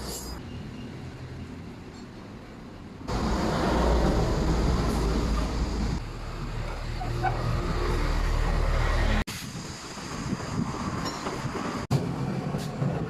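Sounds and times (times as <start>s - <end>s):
heavy vehicle engine humming: 3.0s - 9.2s.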